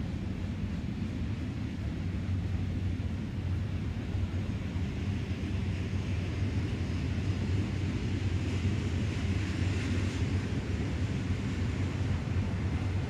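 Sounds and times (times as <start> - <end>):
distant train rumbling past: 0.0 - 13.0.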